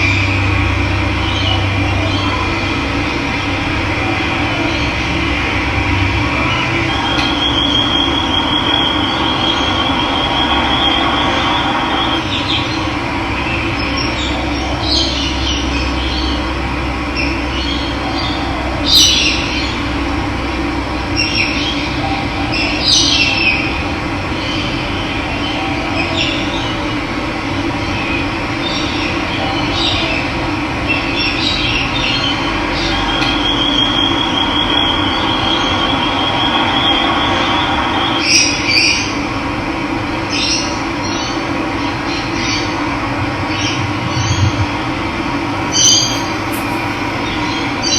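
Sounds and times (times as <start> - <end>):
birds chirping: 45.6 - 47.9
high trilling note: 45.6 - 47.9.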